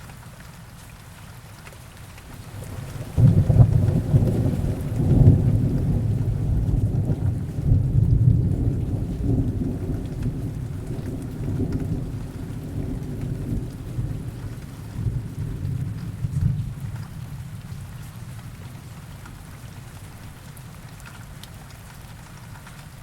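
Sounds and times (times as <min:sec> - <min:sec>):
heavy rain: 0:00.0 - 0:23.0
low rumble of thunder: 0:02.3 - 0:20.4.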